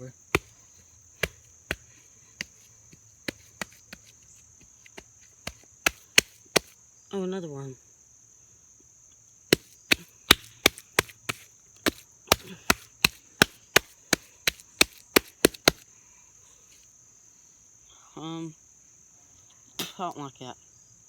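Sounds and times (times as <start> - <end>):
insects droning: 0.0 - 21.0
slaps on wet dirt: 0.3 - 6.8, 9.5 - 15.8.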